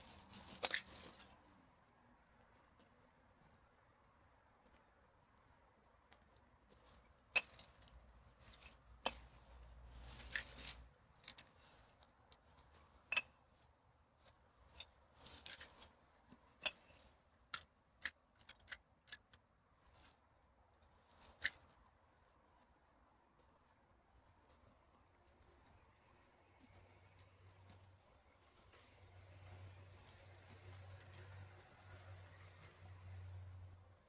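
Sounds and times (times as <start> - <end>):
garbage bag rustling: 0.0 - 1.4
litter crinkling and clinking: 0.0 - 1.4.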